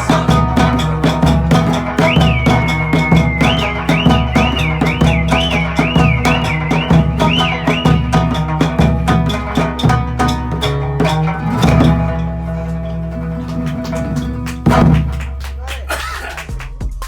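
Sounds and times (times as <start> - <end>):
plucked strings: 0.0 - 15.7
drum playing quick rhythm: 0.0 - 17.0
warbling high whistle: 1.9 - 8.6.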